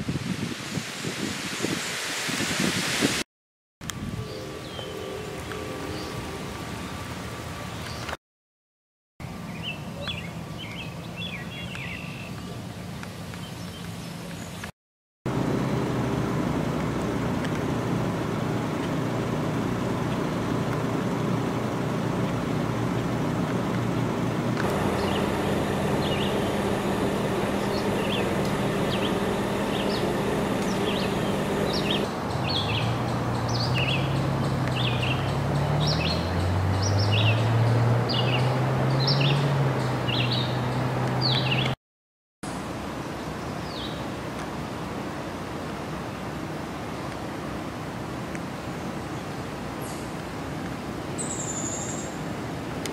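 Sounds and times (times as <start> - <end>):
low motor hum: 15.3 - 32.1
bird chirping: 24.7 - 34.1.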